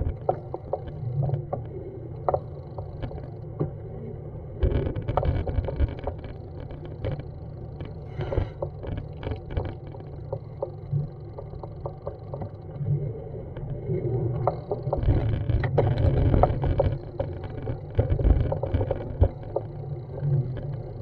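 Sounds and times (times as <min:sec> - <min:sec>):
scattered clicks and knocks: 0:00.0 - 0:03.7, 0:04.6 - 0:12.8, 0:14.4 - 0:21.0.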